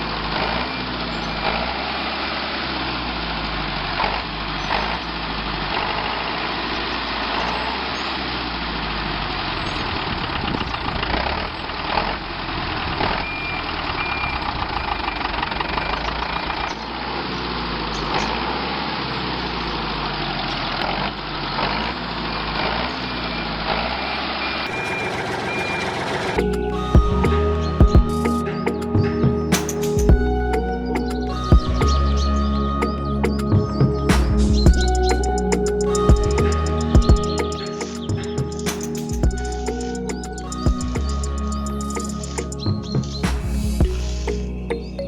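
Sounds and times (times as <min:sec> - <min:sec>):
small tractor motor running: 0:00.0 - 0:26.4
thin high tone: 0:34.1 - 0:45.0.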